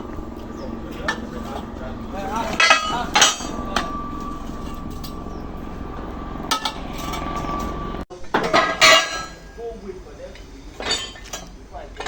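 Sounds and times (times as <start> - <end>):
engine running low rumble: 0.0 - 8.0
metal tools clinking on steel: 0.9 - 5.4, 10.3 - 12.0.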